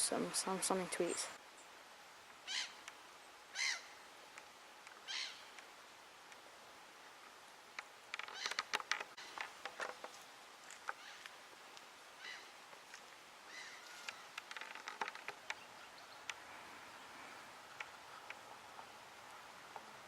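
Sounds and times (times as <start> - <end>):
bird harsh calls: 2.4 - 2.8, 3.5 - 4.0, 5.0 - 5.5, 8.2 - 9.4, 10.9 - 11.3, 12.2 - 12.5, 13.5 - 14.4.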